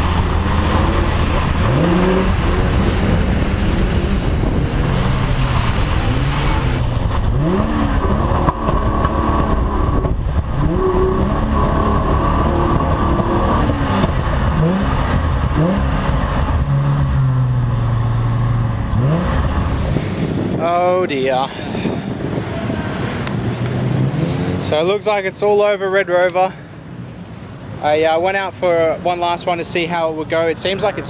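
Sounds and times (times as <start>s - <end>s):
car engine revving and misfiring: 0.0s - 20.8s, 21.8s - 24.8s.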